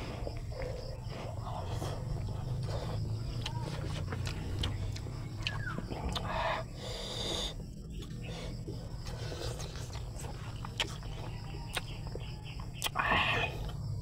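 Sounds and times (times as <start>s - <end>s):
breathy puffs: 0.0s - 5.1s, 5.8s - 10.6s
wet chewing: 0.0s - 13.9s
lip-smacking clicks: 3.3s - 6.4s.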